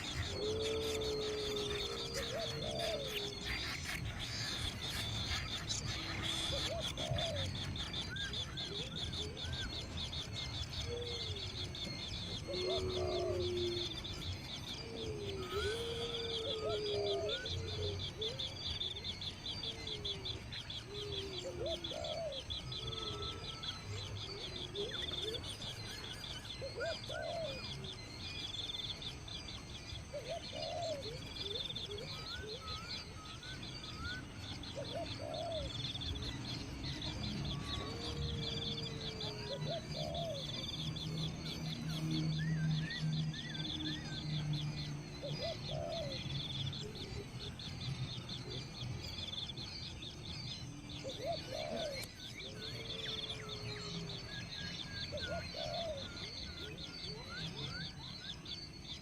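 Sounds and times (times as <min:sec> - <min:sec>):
drawn-out bird calls: 0:00.0 - 0:10.1
birds chirping: 0:00.0 - 0:59.0.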